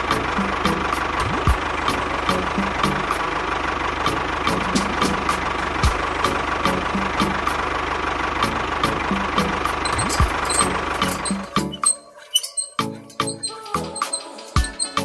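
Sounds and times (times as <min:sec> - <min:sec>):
engine idling: 0:00.0 - 0:15.0
regular clicking: 0:09.9 - 0:15.0.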